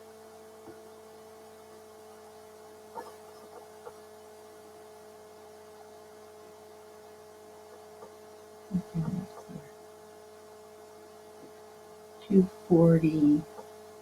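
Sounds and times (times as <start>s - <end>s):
electrical hum: 0.0s - 14.0s
faint constant tones: 0.0s - 14.0s
person mumbling: 8.8s - 9.6s.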